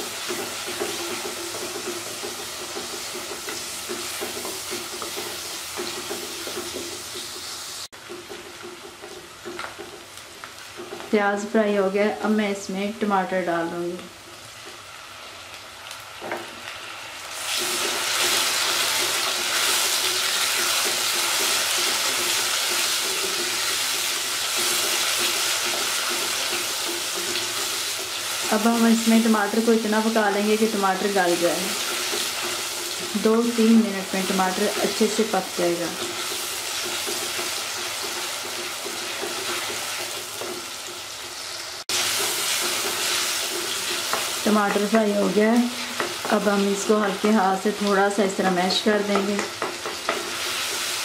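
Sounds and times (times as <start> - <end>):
vegetables sizzling in hot oil: 0.0 - 51.0
wooden spoon stirring: 0.2 - 7.3, 8.0 - 11.1, 42.0 - 45.0.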